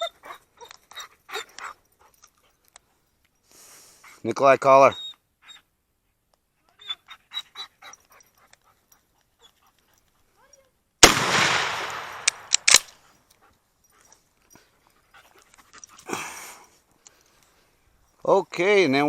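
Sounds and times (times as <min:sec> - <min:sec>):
dog panting: 0:00.0 - 0:03.1, 0:06.6 - 0:10.4, 0:13.0 - 0:16.1
gunshot echoing: 0:11.0 - 0:12.9
sharp clacks: 0:11.4 - 0:13.0.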